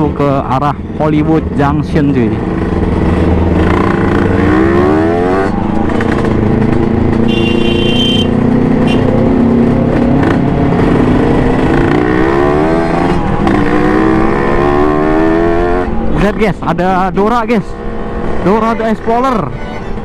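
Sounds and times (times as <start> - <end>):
motorcycle engine revving: 1.0 - 16.4.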